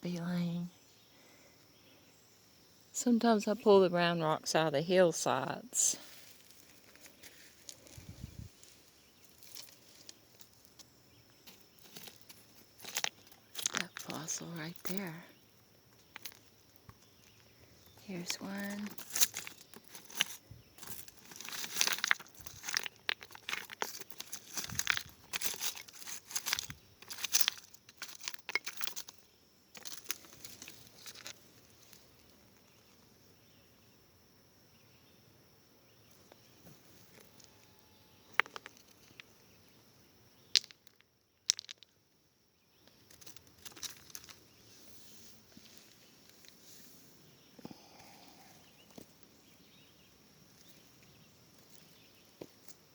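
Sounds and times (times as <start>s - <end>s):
leaves and stones crunching underfoot: 5.2s - 33.0s, 42.9s - 47.0s
sharp clicks of rocks: 9.3s - 15.2s, 18.2s - 32.8s, 38.3s - 39.3s, 40.4s - 42.0s, 42.8s - 44.5s.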